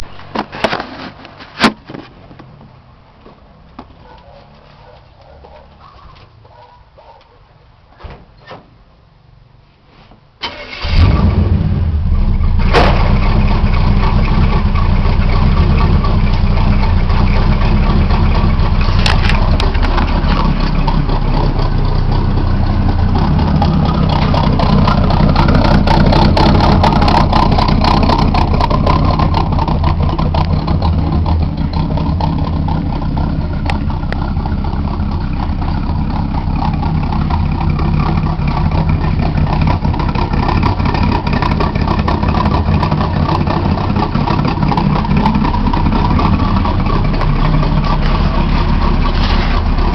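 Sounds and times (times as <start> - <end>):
car engine starting and idling: 10.4 - 49.9.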